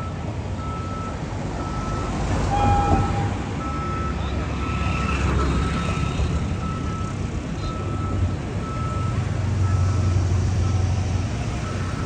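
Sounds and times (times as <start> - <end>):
idling vehicles rumbling: 0.0 - 12.0
electronic warning beeper: 1.7 - 4.8.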